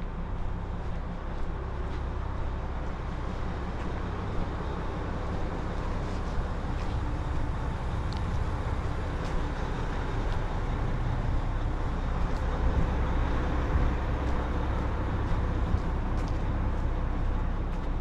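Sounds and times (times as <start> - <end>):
continuous low rumble: 0.0 - 18.0
faint ticks: 8.1 - 8.5.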